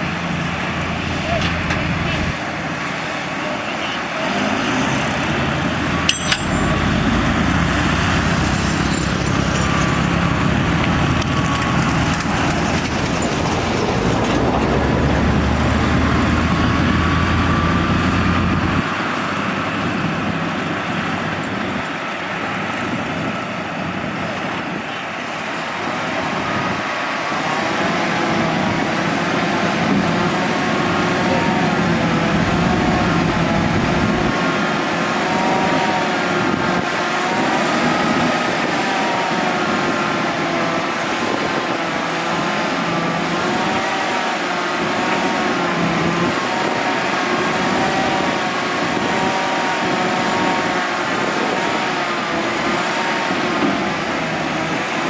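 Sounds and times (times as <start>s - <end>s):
bulldozer diesel engine running: 0.0s - 55.0s
high wavering whine: 5.8s - 18.8s, 26.0s - 55.0s.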